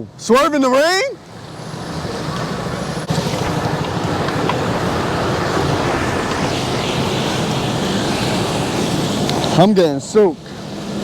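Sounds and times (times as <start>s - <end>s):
wet road noise: 0.0s - 11.0s
wind rushing: 3.0s - 9.5s.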